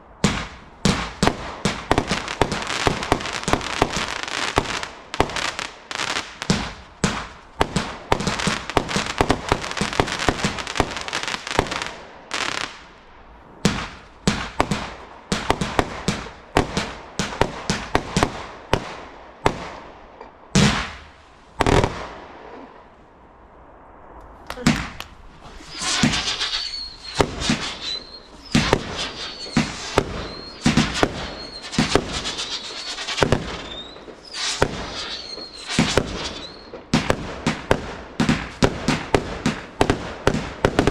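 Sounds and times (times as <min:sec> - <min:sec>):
fireworks bangs and crackling: 0:00.0 - 0:23.0, 0:24.2 - 0:40.9
big firework booms: 0:00.1 - 0:12.9, 0:13.6 - 0:23.0, 0:23.8 - 0:40.9
wavering high whistle: 0:25.5 - 0:36.7.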